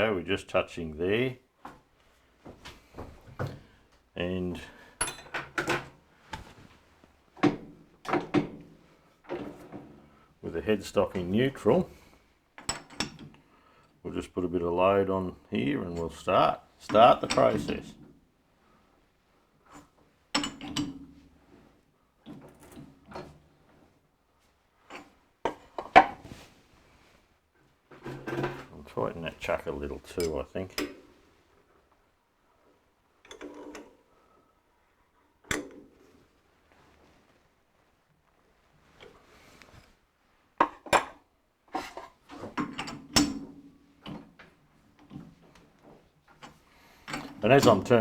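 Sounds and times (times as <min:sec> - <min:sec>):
metal clinks and clanks: 0:05.0 - 0:05.4.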